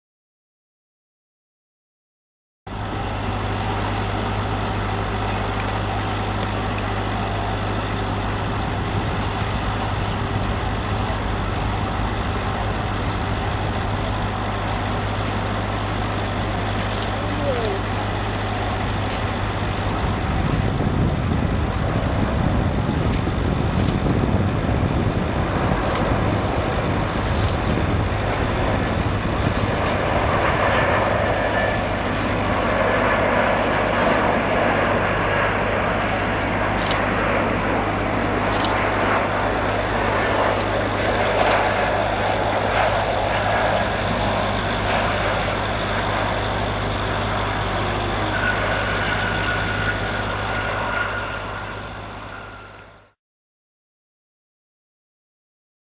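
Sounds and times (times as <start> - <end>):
jet engines running: 2.7 - 53.2.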